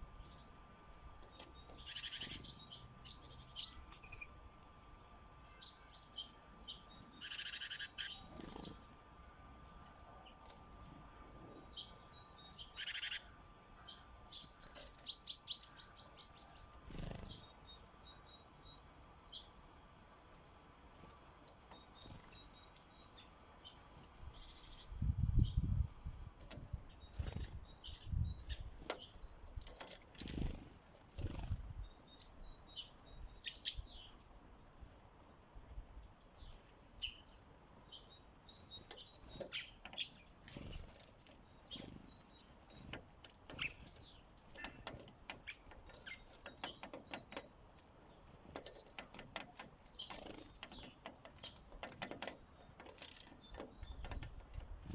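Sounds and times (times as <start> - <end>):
sparrows chirping: 0.0 - 54.9
tapping clicks of pecking: 44.6 - 47.9, 48.5 - 54.8.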